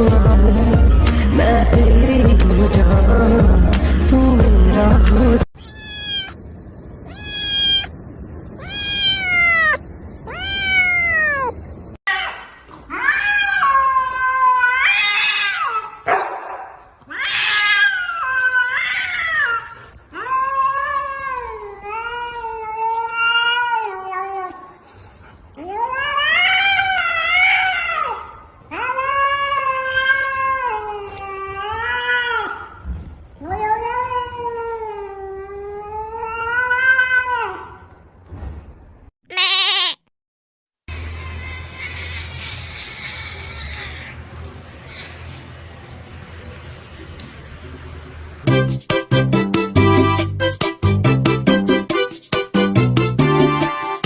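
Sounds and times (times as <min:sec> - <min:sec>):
cat meowing and yowling: 0:05.6 - 0:06.4, 0:07.0 - 0:16.0, 0:17.1 - 0:24.7, 0:25.6 - 0:32.7, 0:33.4 - 0:37.8, 0:39.3 - 0:40.0.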